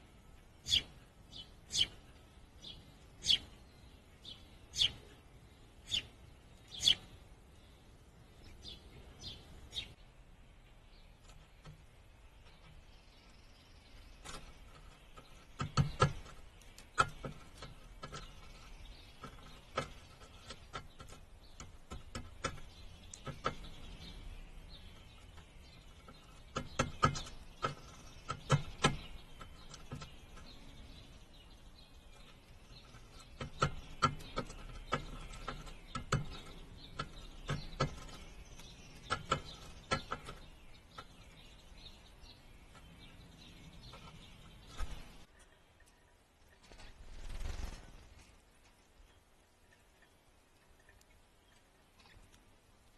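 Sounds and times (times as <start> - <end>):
low outdoor background: 0.0 - 52.9
sharp taps and clicks: 14.2 - 24.1, 24.9 - 30.6, 32.7 - 41.4.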